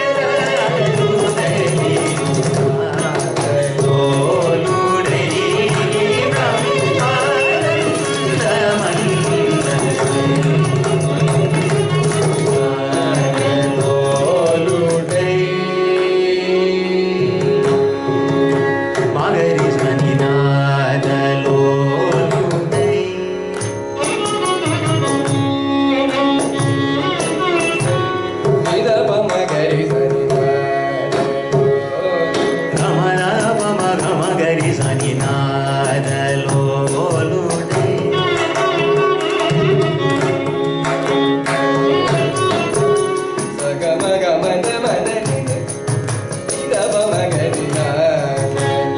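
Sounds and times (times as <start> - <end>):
person singing: 0.0 - 25.4, 26.1 - 48.9
mridangam drum strokes: 0.0 - 48.9.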